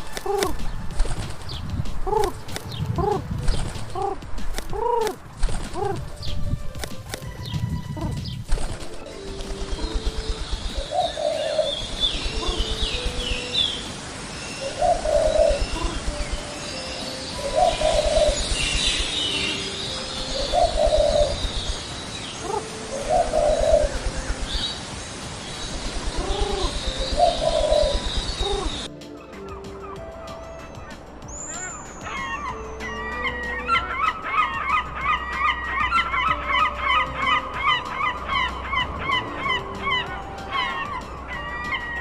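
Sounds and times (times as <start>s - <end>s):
pigeons cooing: 0.0s - 0.6s, 2.0s - 6.4s, 7.8s - 13.8s, 14.6s - 16.7s, 17.3s - 21.8s, 22.4s - 24.6s, 26.0s - 28.9s
small birds chirping: 0.0s - 42.0s.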